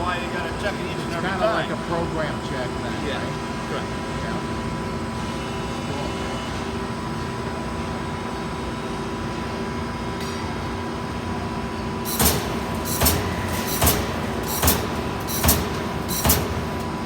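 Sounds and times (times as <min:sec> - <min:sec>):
punch press humming: 0:11.3 - 0:17.0
sharp punch strokes: 0:12.1 - 0:16.9.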